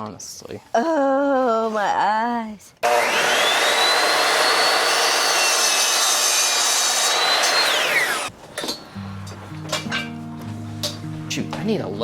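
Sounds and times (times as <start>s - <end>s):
table saw cutting wood: 2.8s - 8.3s.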